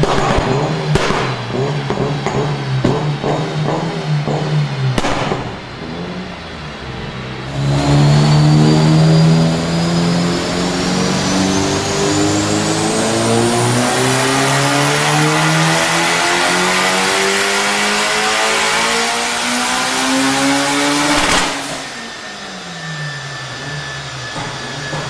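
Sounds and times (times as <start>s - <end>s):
sharp crack: 0.0s - 5.8s, 21.0s - 21.9s
car engine accelerating hard: 0.0s - 25.0s
high turbo whine: 0.0s - 25.0s.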